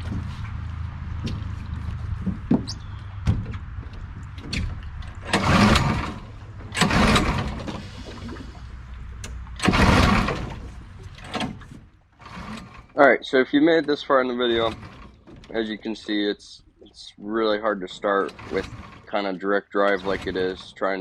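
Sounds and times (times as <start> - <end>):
recoil pull-starter zipping: 5.1 - 8.4, 18.2 - 19.2.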